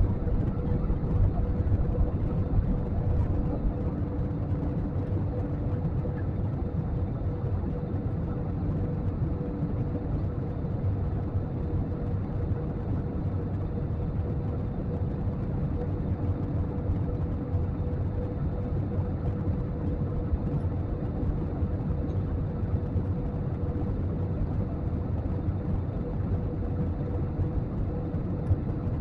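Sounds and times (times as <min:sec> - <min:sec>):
engines and airflow drone: 0:00.0 - 0:29.0
faint steady hum: 0:00.0 - 0:29.0.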